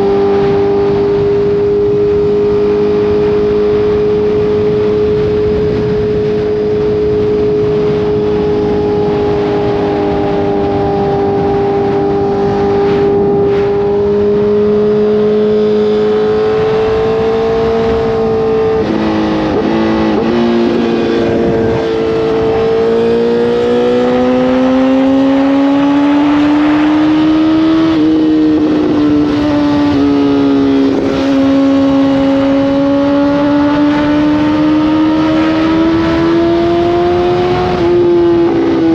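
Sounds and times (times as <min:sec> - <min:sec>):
motorcycle engine accelerating: 0:00.0 - 0:38.9
wind noise: 0:00.0 - 0:38.9.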